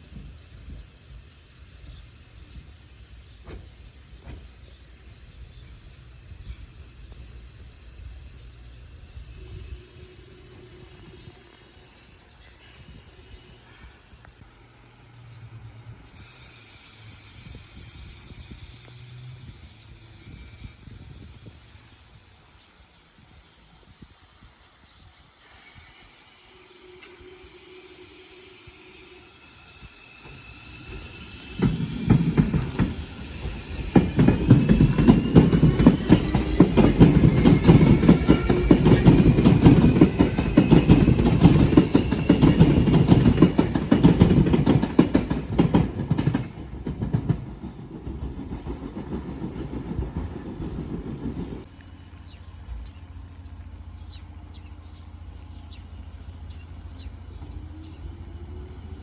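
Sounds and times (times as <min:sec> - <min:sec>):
train wheels clacking: 0:00.0 - 0:07.2, 0:25.3 - 0:51.8
rain hissing: 0:00.0 - 0:47.9
faint train whine: 0:00.0 - 0:59.0.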